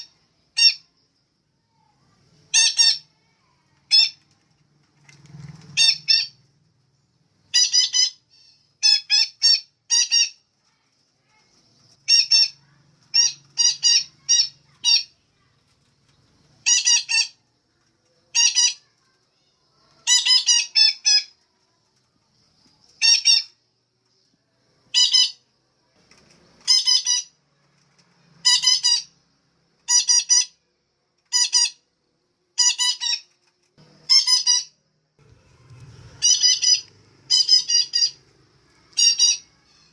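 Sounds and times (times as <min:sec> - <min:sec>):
parakeet squawking: 0:00.6 - 0:00.8, 0:02.5 - 0:03.1, 0:05.8 - 0:06.4, 0:07.5 - 0:10.4, 0:12.0 - 0:15.2, 0:16.6 - 0:17.4, 0:18.3 - 0:18.9, 0:20.0 - 0:21.3, 0:24.9 - 0:25.4, 0:26.6 - 0:27.4, 0:28.4 - 0:29.2, 0:29.9 - 0:30.6, 0:31.3 - 0:31.8, 0:32.6 - 0:33.2, 0:34.0 - 0:34.7, 0:36.0 - 0:39.9.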